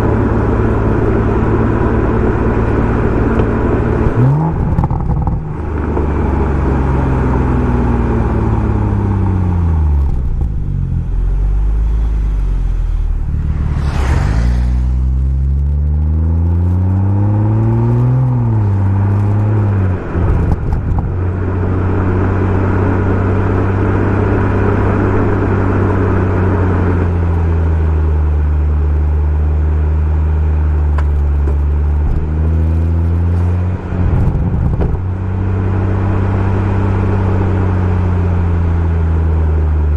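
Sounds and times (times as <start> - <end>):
car engine accelerating: 0.0 - 39.9
brief rush of noise: 11.7 - 15.5.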